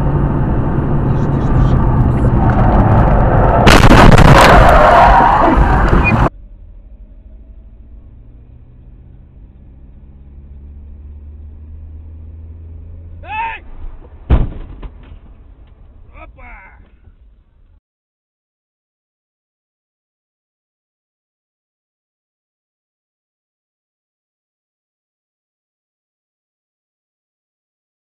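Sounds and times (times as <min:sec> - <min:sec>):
low hum: 0:00.0 - 0:16.1
distorted car crash: 0:01.2 - 0:06.3, 0:13.6 - 0:15.6
sharp knock: 0:14.3 - 0:15.2.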